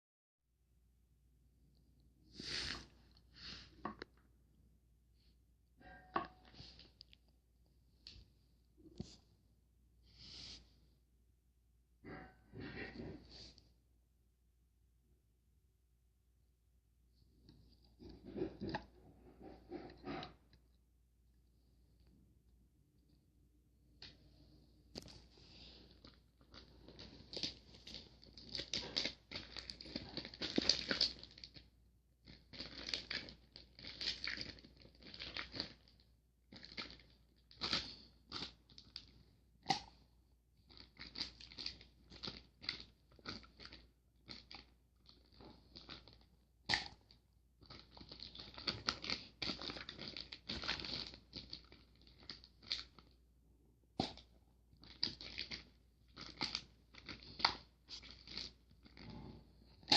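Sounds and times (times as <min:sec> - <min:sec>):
slime squishing and crackling: 0:25.0 - 0:40.0, 0:40.6 - 0:53.2, 0:54.0 - 0:59.9.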